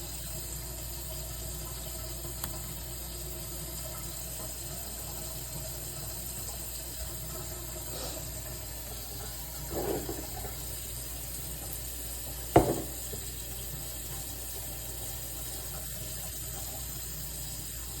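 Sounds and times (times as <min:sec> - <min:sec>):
sharp knock: 0:12.6 - 0:13.1.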